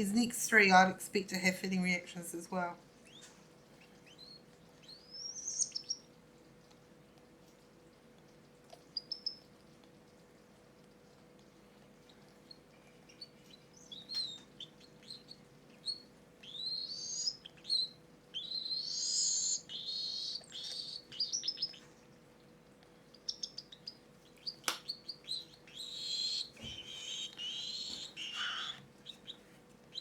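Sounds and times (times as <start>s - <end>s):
cockatiel chicks squeaking and chirping: 3.0s - 6.8s, 8.4s - 9.5s, 12.0s - 22.0s, 23.1s - 30.0s.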